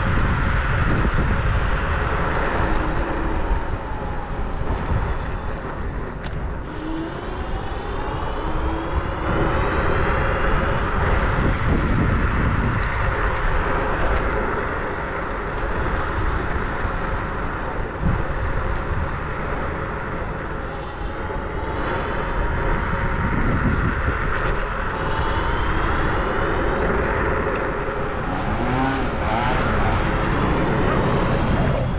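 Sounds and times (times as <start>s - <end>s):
wind rush on microphone: 0.0s - 31.9s
whine rising and falling in pitch: 1.6s - 11.5s, 20.5s - 31.9s.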